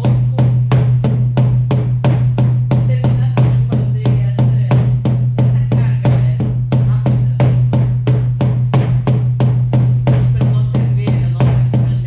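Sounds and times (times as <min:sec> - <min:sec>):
frame drum beating: 0:00.0 - 0:12.0.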